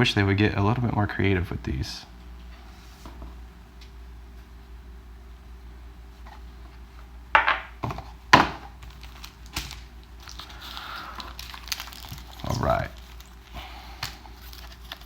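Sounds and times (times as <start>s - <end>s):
packaging crinkles and knocks: 7.8s - 15.0s
packaging rustling: 8.5s - 15.0s.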